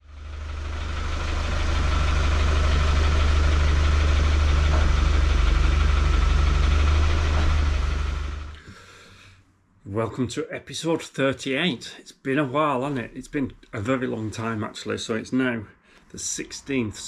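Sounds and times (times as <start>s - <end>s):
engine idling: 0.0s - 8.6s.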